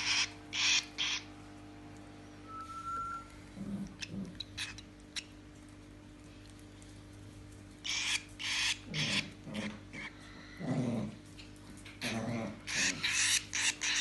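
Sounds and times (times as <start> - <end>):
chick raspy begging calls: 0.0 - 1.3, 7.9 - 9.7.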